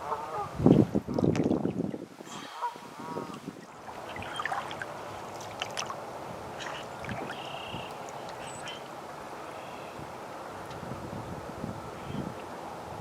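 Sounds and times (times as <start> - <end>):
water gurgling around a canoe: 0.9 - 2.3, 3.1 - 8.8.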